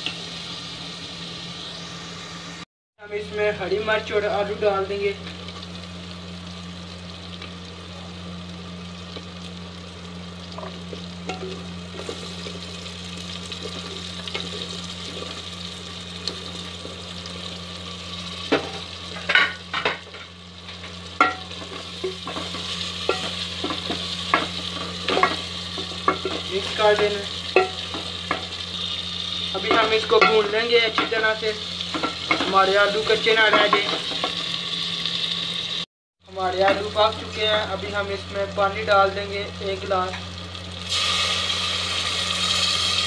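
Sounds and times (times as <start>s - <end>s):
food sizzling in a pot: 0.0s - 43.0s
spoon knocking and scraping a pot: 21.2s - 27.0s.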